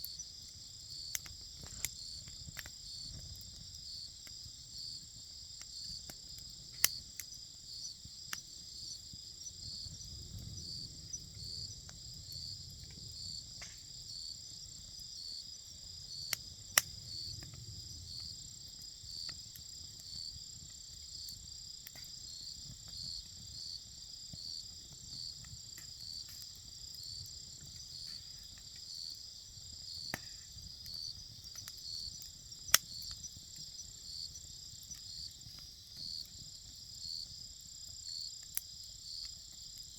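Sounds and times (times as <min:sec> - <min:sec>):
campfire popping: 0:00.0 - 0:39.9
insects chorus: 0:00.0 - 0:39.9.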